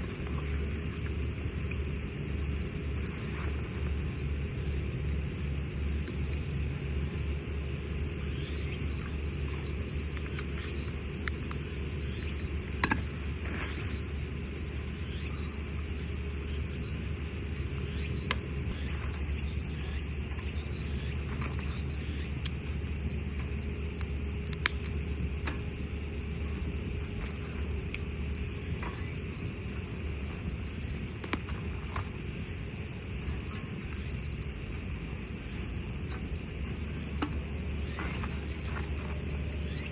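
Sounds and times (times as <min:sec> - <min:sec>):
crickets chirring: 0:00.0 - 0:39.9
sharp pops and clicks: 0:12.8 - 0:13.1, 0:23.4 - 0:25.7.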